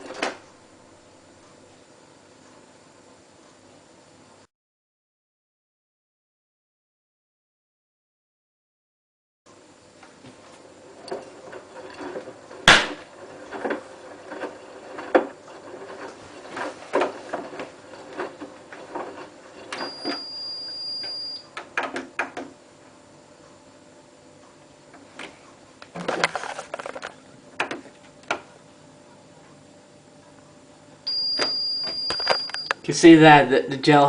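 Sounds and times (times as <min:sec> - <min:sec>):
high beep: 0:19.8 - 0:21.4, 0:31.1 - 0:32.8.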